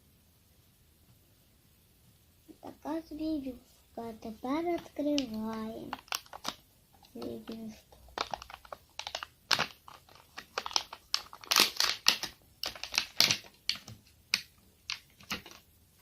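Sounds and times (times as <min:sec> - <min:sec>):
plastic packaging crinkling: 0:04.6 - 0:15.7.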